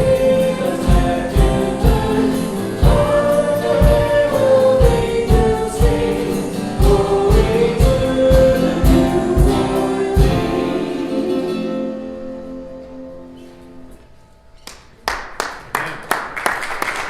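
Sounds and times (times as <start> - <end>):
steady drum beat: 0.0 - 11.1
person singing: 0.0 - 12.8
guitar: 0.0 - 15.0.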